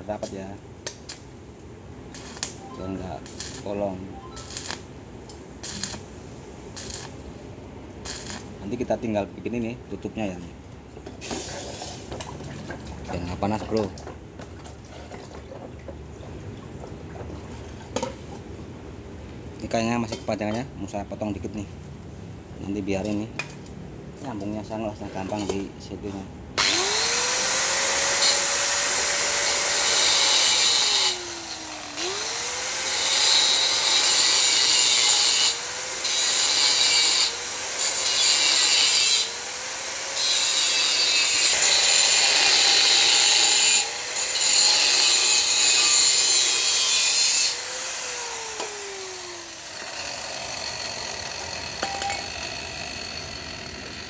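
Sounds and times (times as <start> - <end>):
angle grinder cutting steel: 2.2 - 4.8, 5.6 - 6.0, 6.8 - 7.1, 8.0 - 8.4, 26.6 - 54.0.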